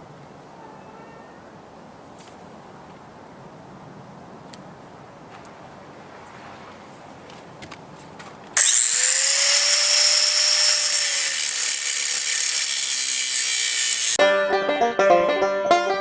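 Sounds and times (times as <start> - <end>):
angle grinder cutting metal: 8.6 - 14.2
banjo music: 14.2 - 16.0.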